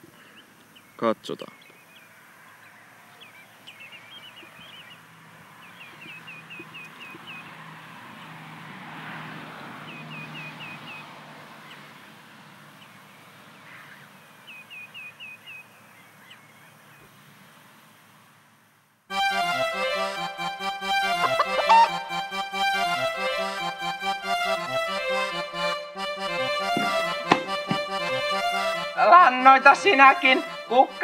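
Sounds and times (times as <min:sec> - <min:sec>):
small bird singing chirps: 0:00.2 - 0:07.6, 0:09.9 - 0:11.8, 0:12.8 - 0:17.1
road vehicle passing: 0:01.9 - 0:31.0.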